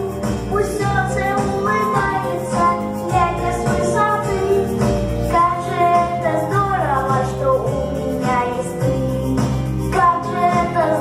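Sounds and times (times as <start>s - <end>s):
recorded music backing track: 0.0s - 11.0s
children singing: 5.3s - 7.5s, 10.0s - 11.0s.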